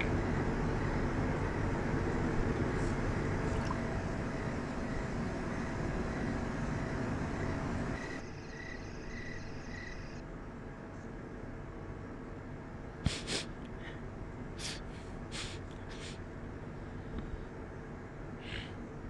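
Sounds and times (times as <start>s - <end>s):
cricket-like chirps: 3.7s - 10.2s.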